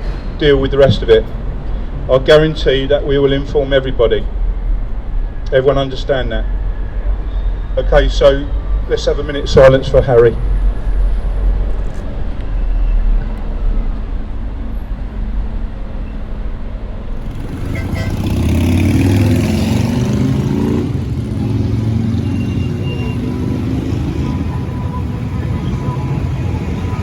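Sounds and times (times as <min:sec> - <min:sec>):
motor vehicle engine running: 0:13.2 - 0:27.0.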